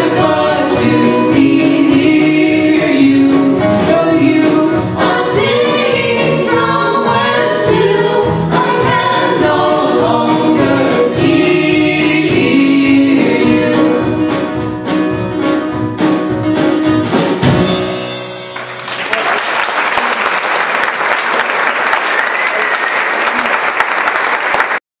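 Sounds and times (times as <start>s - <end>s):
group singing with instruments: 0.0s - 15.3s
audience applause: 18.6s - 24.8s.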